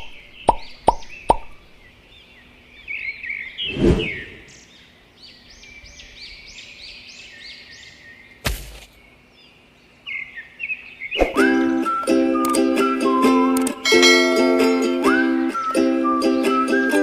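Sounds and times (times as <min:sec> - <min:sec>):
bird chirping: 0:00.0 - 0:11.4.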